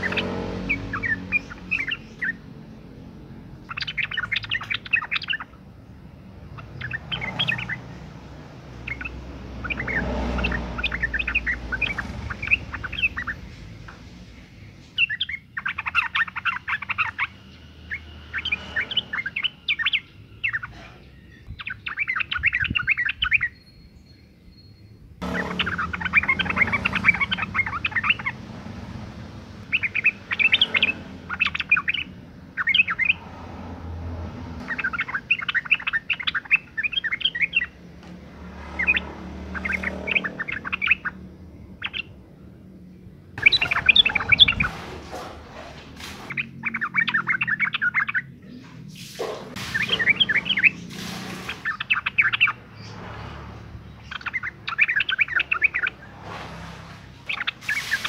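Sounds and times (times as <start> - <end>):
bird chattering call: 8.8 - 13.5, 25.2 - 28.4, 29.6 - 33.2, 34.6 - 37.8, 43.4 - 44.9.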